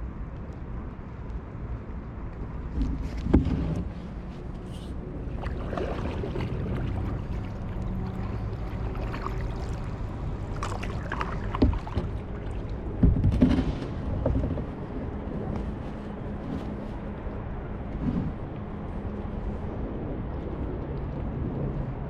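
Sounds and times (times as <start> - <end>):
steady low rumble: 0.0 - 22.0
paddle splashing in water: 3.0 - 17.0.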